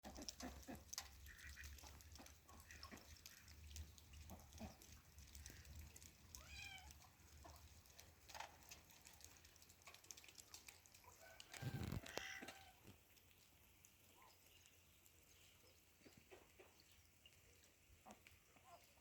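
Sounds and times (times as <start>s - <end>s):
cat meowing: 6.4s - 6.9s.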